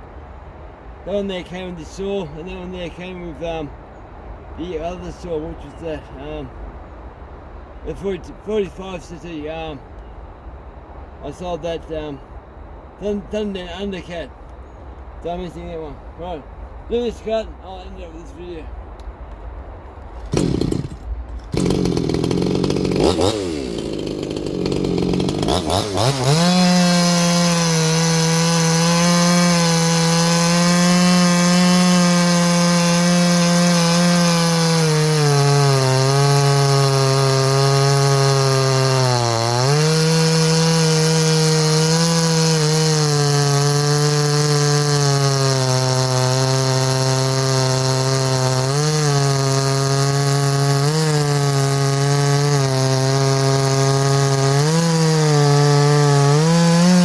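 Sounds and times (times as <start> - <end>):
chainsaw cutting wood: 20.1 - 57.0.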